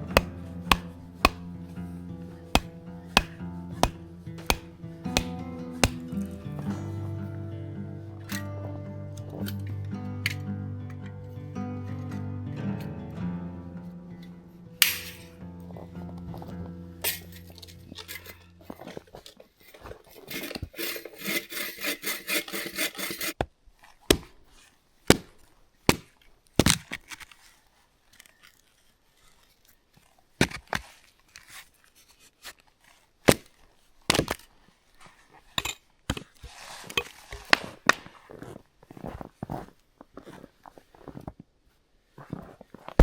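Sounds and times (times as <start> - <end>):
hand saw cutting wood: 0.1 - 1.6, 2.4 - 6.3, 20.1 - 23.4.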